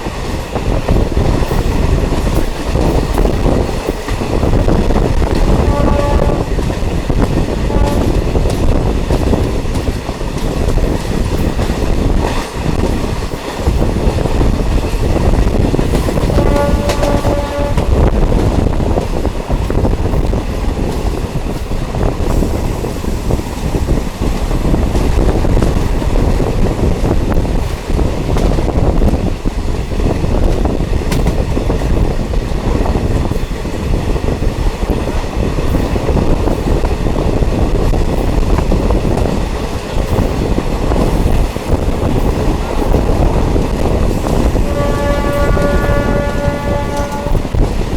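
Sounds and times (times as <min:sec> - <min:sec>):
diesel train running: 0:00.0 - 0:47.9
train horn: 0:05.2 - 0:06.7, 0:07.4 - 0:08.4, 0:16.2 - 0:18.3, 0:44.2 - 0:47.7.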